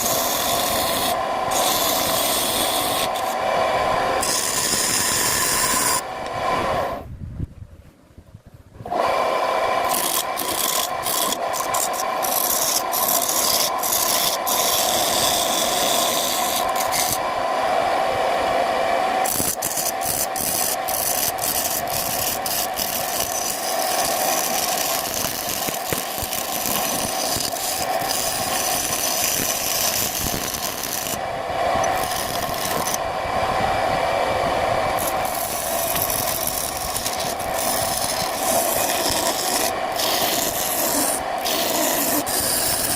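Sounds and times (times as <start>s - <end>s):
tool rasping against wood: 0.0s - 3.4s, 4.2s - 6.0s, 9.8s - 17.2s, 19.2s - 31.2s, 31.8s - 33.0s, 35.0s - 42.9s
wood lathe humming: 0.0s - 7.0s, 8.8s - 42.9s.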